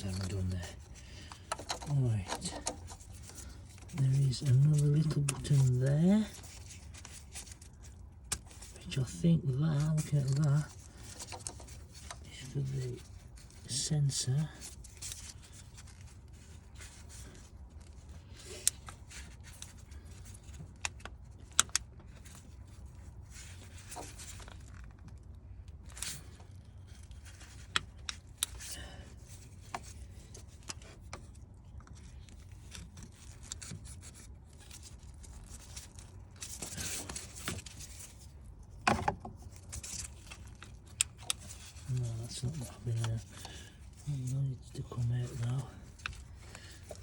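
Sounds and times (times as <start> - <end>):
plastic rubbing and scraping: 0.0 - 47.0
plastic parts clicking and knocking: 1.3 - 4.0, 38.8 - 41.9.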